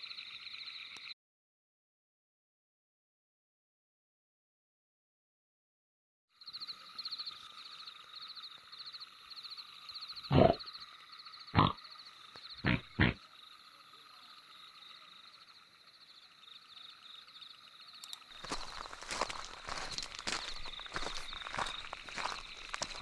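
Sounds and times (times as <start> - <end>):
night insects chirping: 0.0 - 1.2, 6.3 - 23.0
cartoon pig snorts: 10.3 - 10.6, 11.6 - 11.8, 12.6 - 13.2
footsteps: 18.4 - 23.0.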